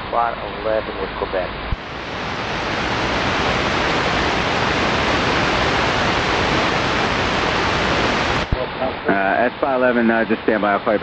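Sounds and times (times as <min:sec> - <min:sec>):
radio static hiss: 0:01.7 - 0:09.5.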